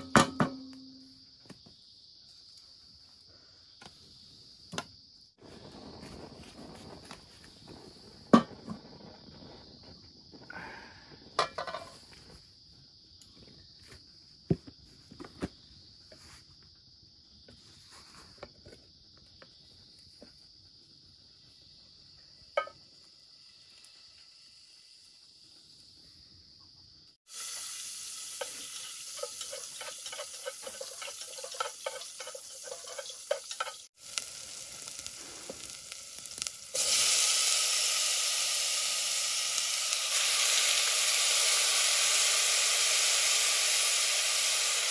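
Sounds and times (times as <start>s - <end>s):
food sizzling in a pan: 21.3s - 26.6s, 27.2s - 44.9s.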